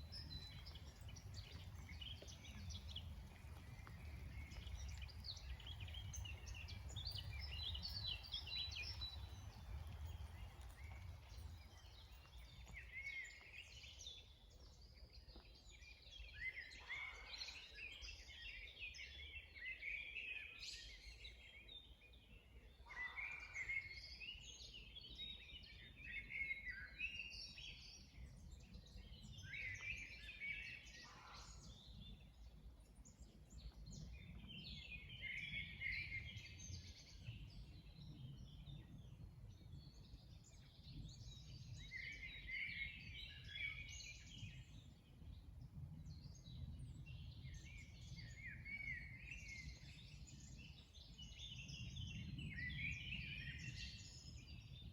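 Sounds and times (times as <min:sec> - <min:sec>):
faint low outdoor rumble: 0:00.0 - 0:16.3
songbirds chirping and trilling: 0:00.0 - 0:54.9.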